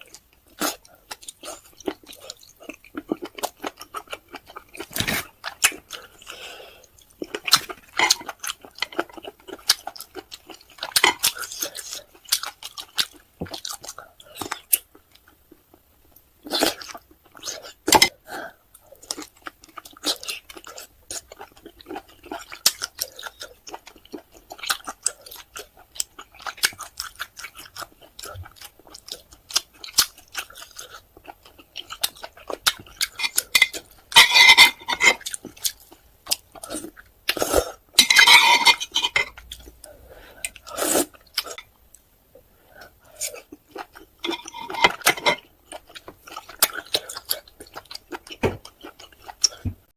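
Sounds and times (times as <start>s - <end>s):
chewing: 0.0s - 42.0s, 42.7s - 49.8s
utensils clinking against dish: 33.1s - 35.2s, 38.0s - 39.3s, 44.2s - 45.4s.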